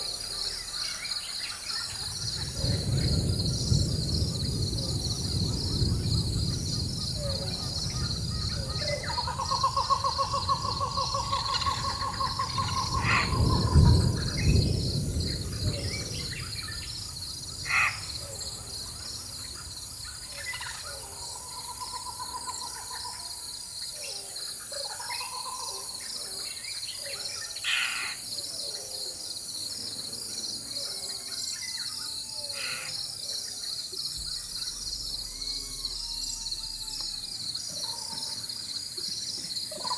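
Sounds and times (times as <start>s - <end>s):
pulsing insect chorus: 0.0s - 39.9s
distant thunder rumble: 1.6s - 23.6s, 34.1s - 39.7s.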